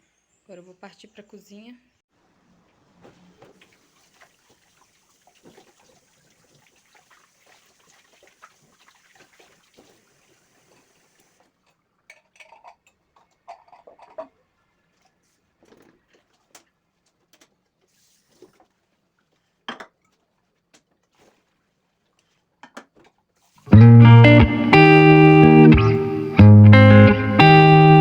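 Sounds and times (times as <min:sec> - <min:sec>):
dishes clinking: 0:11.6 - 0:14.4
quiet rustling: 0:14.8 - 0:23.6.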